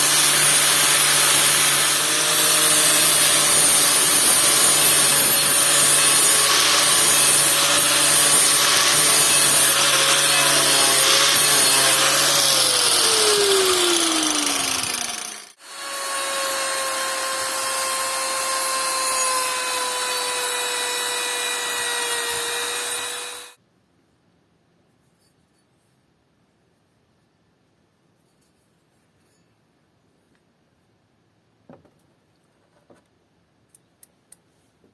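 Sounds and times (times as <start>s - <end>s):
power tool rasping on wood: 0.0s - 23.6s.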